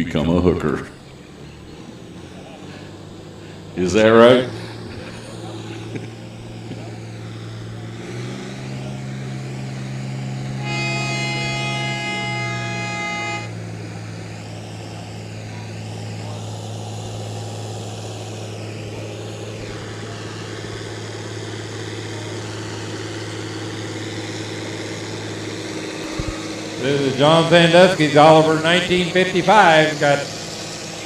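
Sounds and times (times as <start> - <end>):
tractor engine running: 0.0 - 31.0
horn sounding: 5.8 - 16.2, 19.0 - 31.0.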